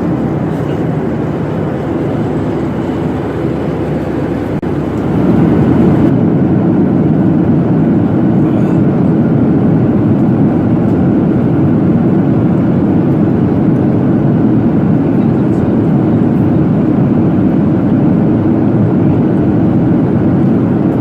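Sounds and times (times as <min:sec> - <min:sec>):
airplane cabin noise: 0:00.0 - 0:21.0.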